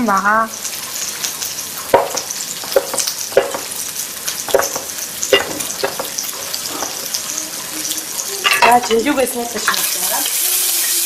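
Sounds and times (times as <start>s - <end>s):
food sizzling in a wok: 0.0s - 11.0s
cleaver chopping on wooden board: 2.0s - 3.7s.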